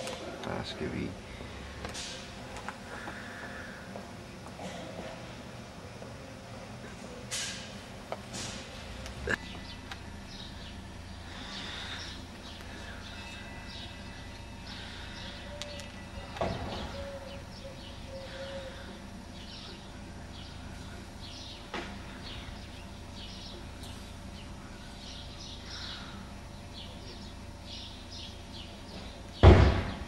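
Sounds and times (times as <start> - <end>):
small birds chirping: 9.3 - 29.4
loud thump: 29.4 - 30.0.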